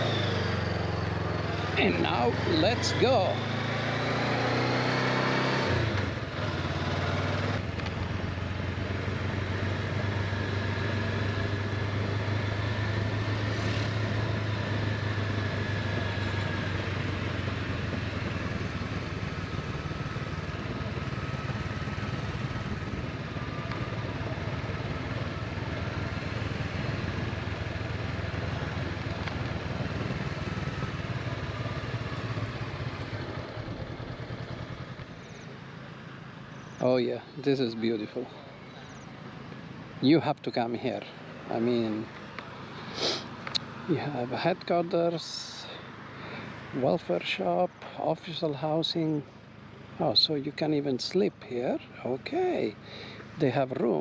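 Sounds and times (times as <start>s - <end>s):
motorcycle engine running: 0.0s - 37.0s
road noise: 0.0s - 54.0s.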